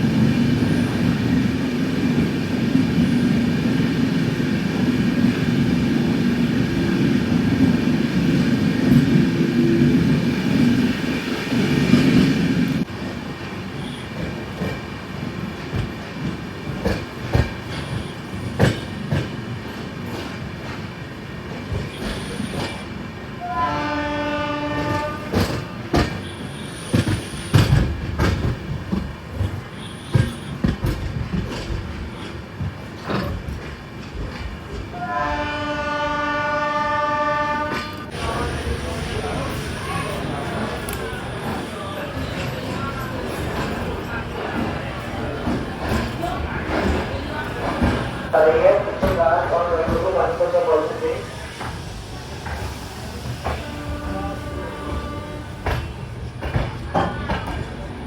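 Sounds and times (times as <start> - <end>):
train rumble: 0.0 - 58.0
train horn blasts: 23.4 - 26.8, 35.0 - 38.2, 53.4 - 55.8.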